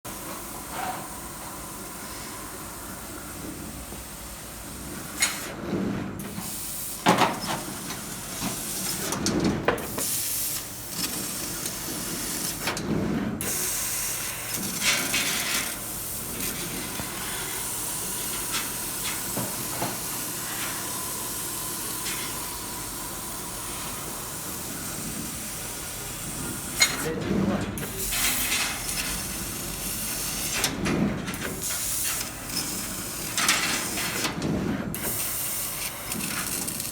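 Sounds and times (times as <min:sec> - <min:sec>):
laser cutting machine running: 0:08.3 - 0:36.9.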